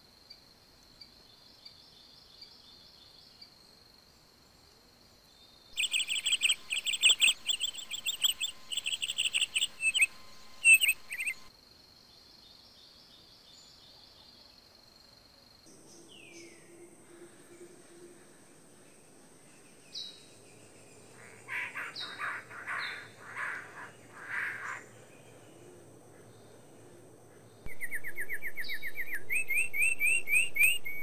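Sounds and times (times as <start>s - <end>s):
songbird chirping: 0.2s - 31.0s
high-pitched insect trill: 5.8s - 11.5s.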